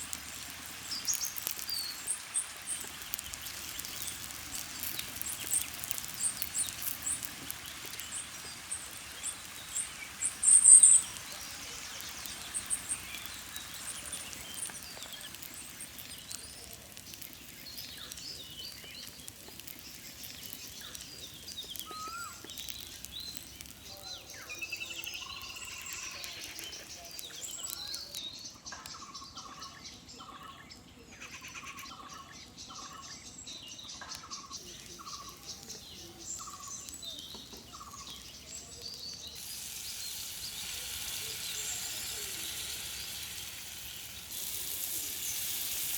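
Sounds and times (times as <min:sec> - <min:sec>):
wild birds chirping: 0:00.0 - 0:45.9.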